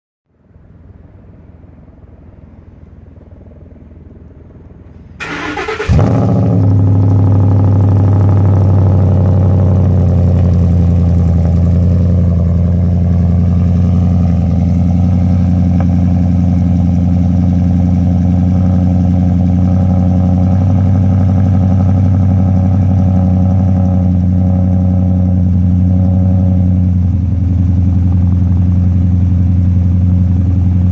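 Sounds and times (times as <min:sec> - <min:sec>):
starter motor cranking: 0:05.2 - 0:06.2
loud engine idling: 0:05.2 - 0:30.9.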